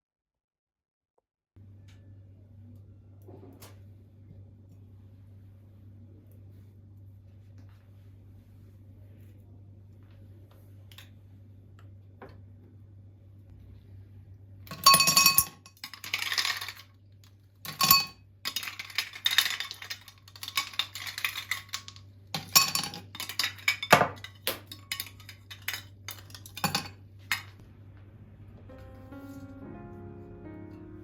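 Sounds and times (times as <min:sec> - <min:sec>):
faint steady hum: 0:01.6 - 0:31.0
dishes and cutlery clinking: 0:17.7 - 0:27.6.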